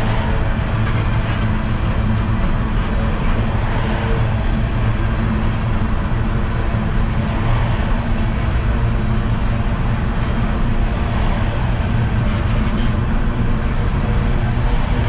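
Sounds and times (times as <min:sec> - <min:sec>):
coal train rumbling past: 0:00.0 - 0:15.0.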